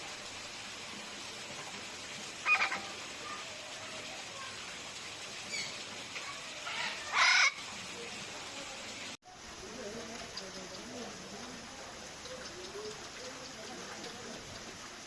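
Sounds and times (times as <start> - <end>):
steady hiss: 0.0 - 15.0
birds calling: 2.4 - 3.9, 5.4 - 9.1, 10.0 - 15.0
faint bird chirps: 5.5 - 5.8.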